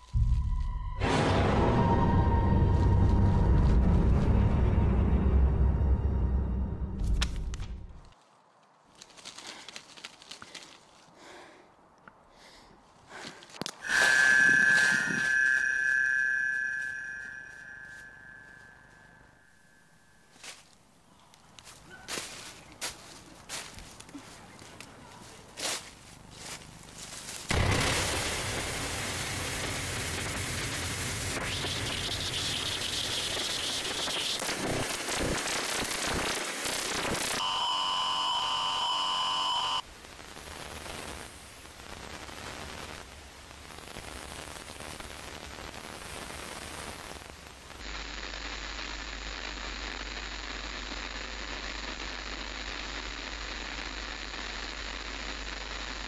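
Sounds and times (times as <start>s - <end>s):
steady electronic tones: 13.8s - 19.6s
television static hiss: 39.1s - 56.0s.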